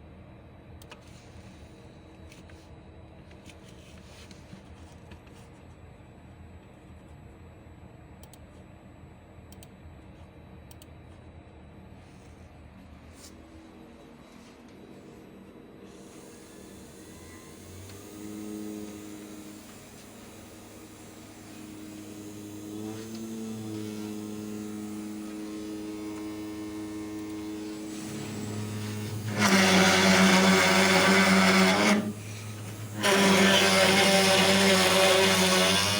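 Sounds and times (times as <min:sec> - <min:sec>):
router spindle humming: 0:15.9 - 0:35.9
router bit grinding into wood: 0:17.3 - 0:35.9.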